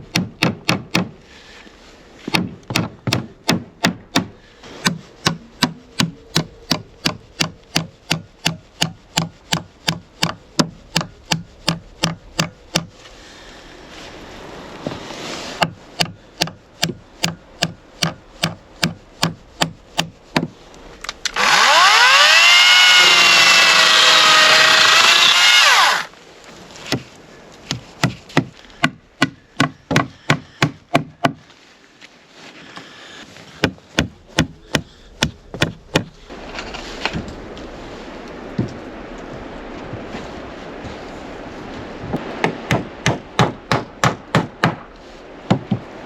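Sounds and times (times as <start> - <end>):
sharp strikes on wood: 0.0 - 1.2, 2.3 - 12.9, 15.6 - 20.5, 33.6 - 36.2, 42.4 - 44.9
power tool running: 21.3 - 26.1.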